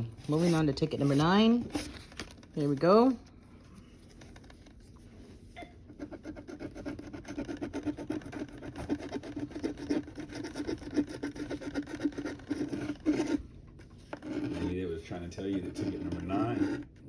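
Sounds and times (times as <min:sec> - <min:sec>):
lottery ticket being scratched: 0:00.0 - 0:02.0, 0:05.8 - 0:13.4, 0:14.2 - 0:16.9.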